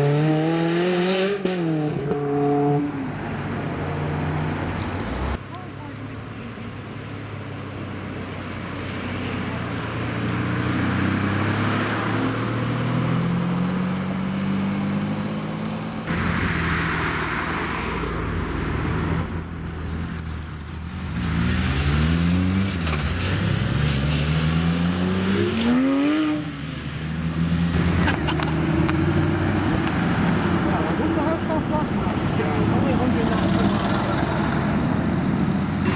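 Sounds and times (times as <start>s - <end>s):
car engines at low speed: 0.0s - 35.9s
brief high-pitched squeal: 19.2s - 21.0s.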